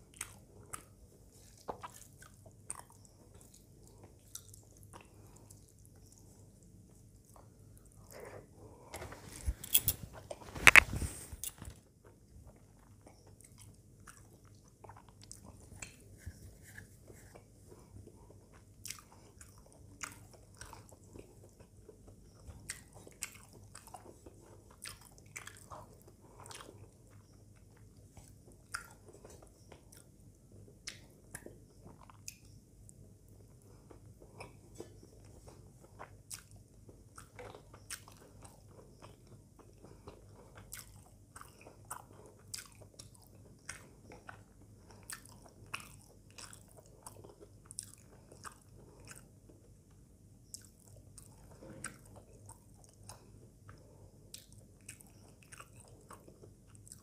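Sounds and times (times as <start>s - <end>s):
chewing with wet smacks: 0.0s - 57.0s.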